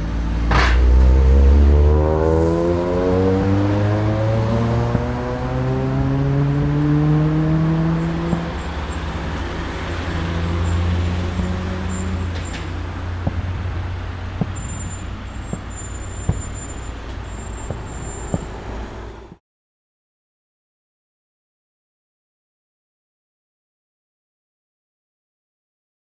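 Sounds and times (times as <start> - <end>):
road traffic: 0.0 - 19.4
vehicle engine running: 0.0 - 19.4
short sharp bangs: 0.4 - 1.0.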